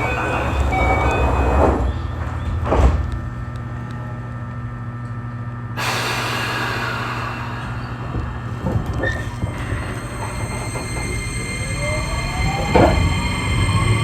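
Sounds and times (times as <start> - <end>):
train doors closing thump: 0.0 - 3.1, 12.6 - 13.1
train equipment humming: 0.0 - 14.0
air brake hiss: 5.8 - 10.5.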